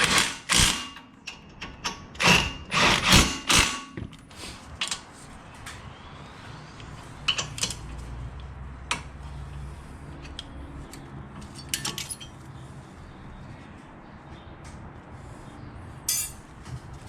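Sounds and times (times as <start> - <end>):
metal tools clinking: 10.2 - 12.5, 16.0 - 16.5.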